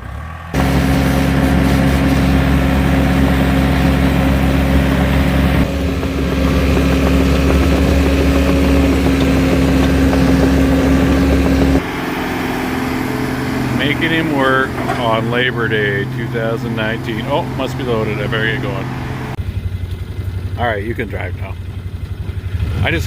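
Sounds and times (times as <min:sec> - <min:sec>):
heavy equipment engine humming: 0:00.0 - 0:22.7.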